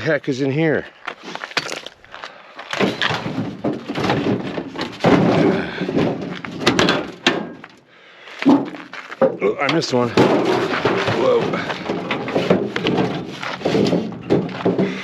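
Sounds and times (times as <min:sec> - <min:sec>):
metal cover clanking and scraping: 0:02.8 - 0:07.8, 0:08.4 - 0:15.0.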